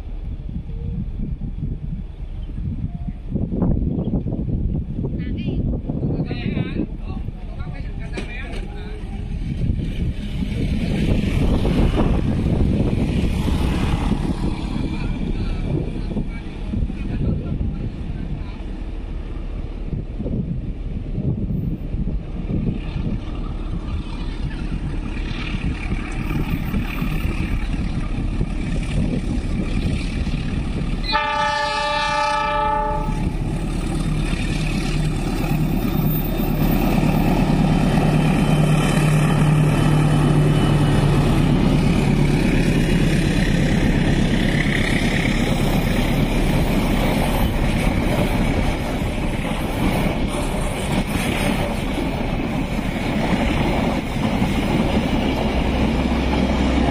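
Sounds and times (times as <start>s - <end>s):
carriages rolling on rails: 5.7s - 56.9s
locomotive engine drone: 6.8s - 56.9s
train horn: 31.0s - 33.4s.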